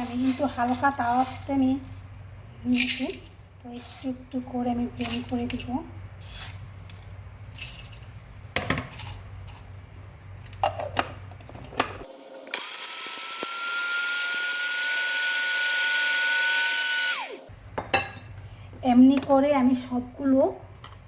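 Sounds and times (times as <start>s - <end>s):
electric blender grinding spices: 12.1s - 17.4s.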